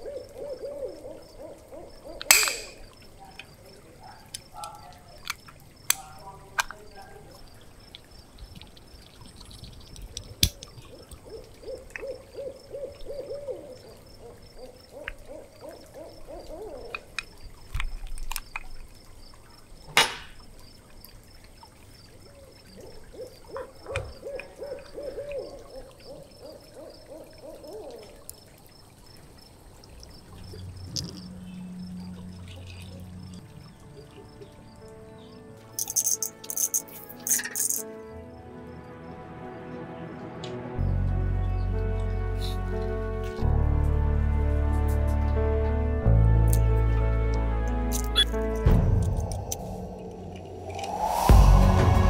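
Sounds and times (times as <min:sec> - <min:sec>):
bird hooting: 0:00.0 - 0:02.8, 0:10.8 - 0:17.2, 0:22.7 - 0:28.2
plastic model parts clicking: 0:04.3 - 0:06.8, 0:16.9 - 0:18.7, 0:35.8 - 0:37.8.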